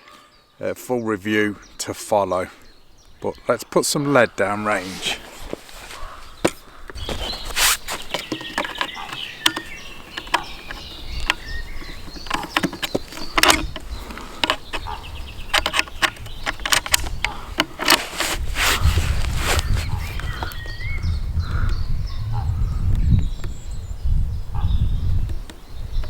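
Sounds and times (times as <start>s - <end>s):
birds chirping: 0.0s - 26.0s
sharp clicks and knocks: 5.1s - 18.8s.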